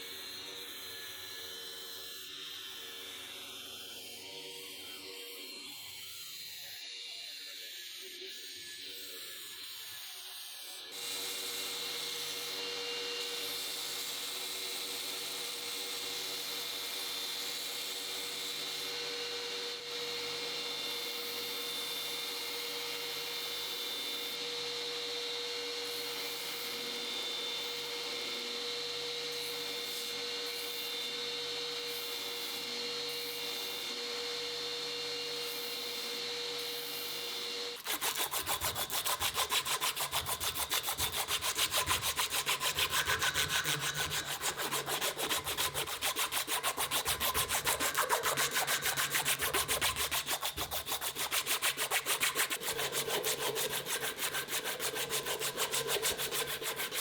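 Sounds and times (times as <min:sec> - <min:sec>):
small machine humming: 0:16.2 - 0:51.2
knife rubbing strokes: 0:37.8 - 0:57.0.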